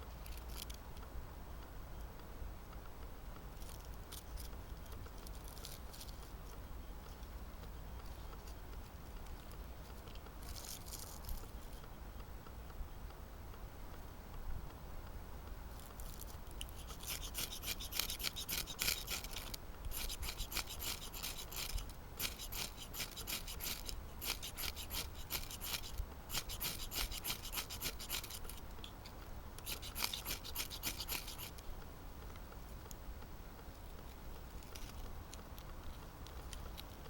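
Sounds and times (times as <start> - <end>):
fire steel rasping strokes: 15.9 - 31.6.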